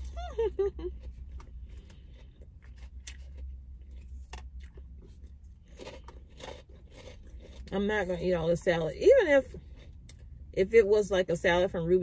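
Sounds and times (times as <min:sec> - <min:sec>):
person chewing lettuce: 0:00.0 - 0:08.5
steady low hum: 0:00.0 - 0:12.0
small crunches: 0:00.9 - 0:07.8.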